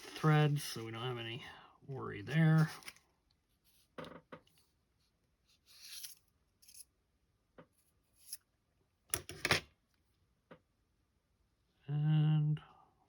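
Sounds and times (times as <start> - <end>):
short scrapes of parts: 5.7 - 6.9.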